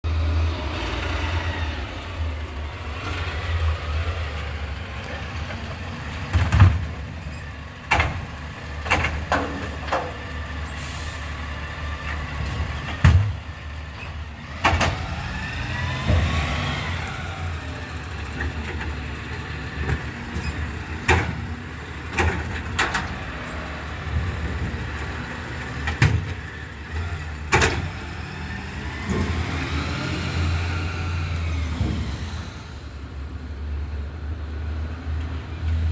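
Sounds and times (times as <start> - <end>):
garbage truck diesel engine: 0.0 - 35.9
bins knocking and clanking: 5.4 - 7.0, 7.9 - 10.2.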